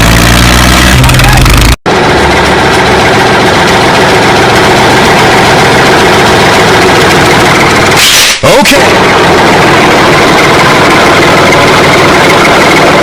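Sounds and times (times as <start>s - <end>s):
motor running loudly: 0.0s - 13.0s.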